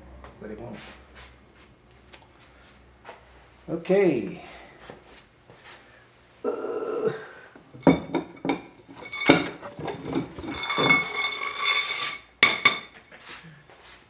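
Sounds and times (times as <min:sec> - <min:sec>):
metal tools clanking: 0:07.8 - 0:13.0
ringing metallic tone: 0:07.9 - 0:12.9.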